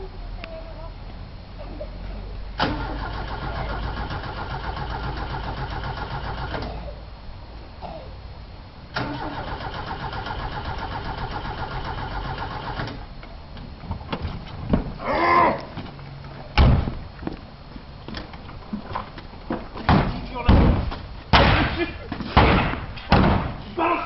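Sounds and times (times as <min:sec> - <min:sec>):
starter motor cranking engine: 0:02.6 - 0:06.7, 0:08.9 - 0:13.1.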